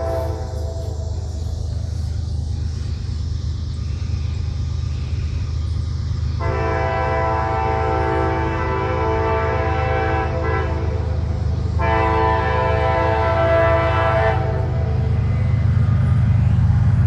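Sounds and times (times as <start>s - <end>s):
train air horn blasts: 0.0s - 1.0s, 6.4s - 15.5s
steady low rumble: 0.0s - 17.0s.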